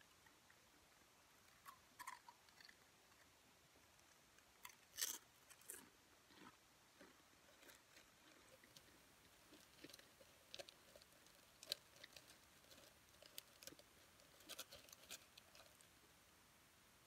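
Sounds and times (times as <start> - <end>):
chips being chewed: 1.5 - 3.3, 4.6 - 15.8.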